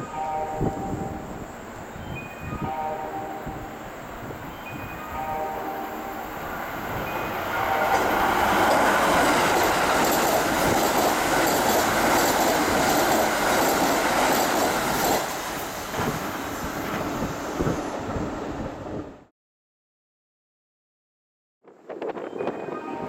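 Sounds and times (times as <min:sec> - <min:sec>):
train wheels rushing on rail: 0:05.8 - 0:19.2.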